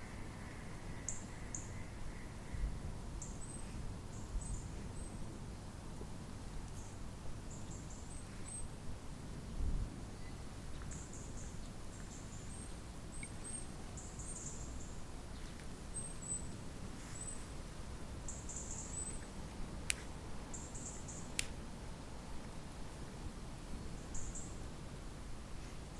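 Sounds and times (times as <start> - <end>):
low wind rumble: 0.0 - 25.9
songbirds high-pitched chirps: 10.2 - 17.5, 18.3 - 19.4, 20.5 - 21.4.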